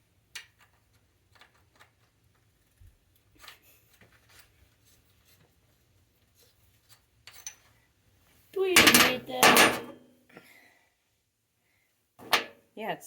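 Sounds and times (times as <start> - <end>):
clicks and rustles of small parts: 0.0 - 7.9.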